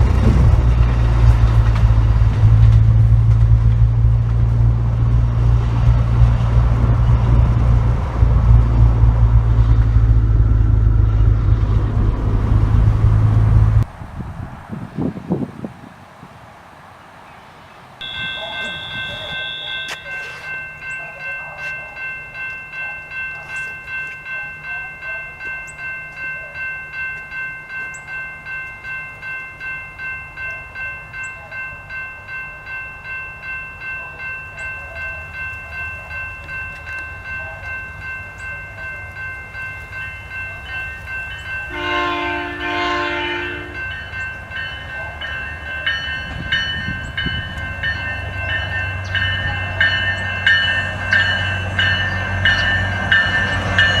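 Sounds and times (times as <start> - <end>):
railroad crossing bell: 0.0 - 13.9, 18.0 - 54.0
train rumble: 0.0 - 54.0
locomotive horn blast: 18.0 - 20.5, 41.6 - 43.9.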